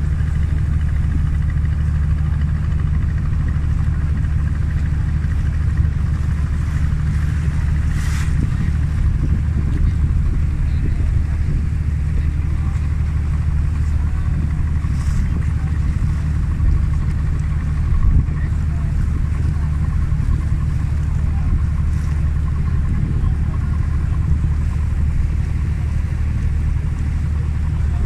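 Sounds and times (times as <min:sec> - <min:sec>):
boat engine droning: 0:00.0 - 0:28.0
water noise: 0:00.0 - 0:28.0
wind noise: 0:07.4 - 0:12.7.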